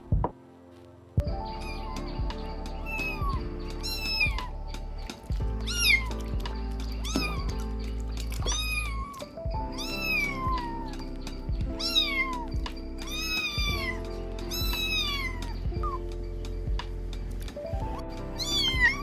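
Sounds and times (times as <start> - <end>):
background music with held notes: 0.0 - 19.0
kittens meowing: 2.8 - 4.6, 5.3 - 16.0, 18.4 - 19.0.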